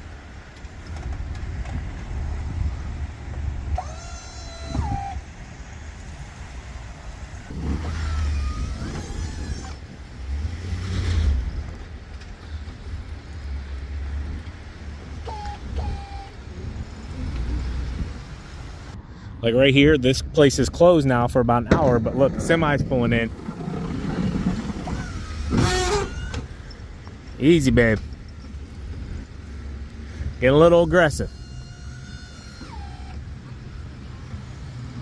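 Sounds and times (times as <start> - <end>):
snow plow engine rumbling: 0.0 - 35.0
squeaky tones: 3.8 - 5.3, 7.5 - 9.8, 15.2 - 17.3, 23.8 - 26.8, 30.4 - 33.3.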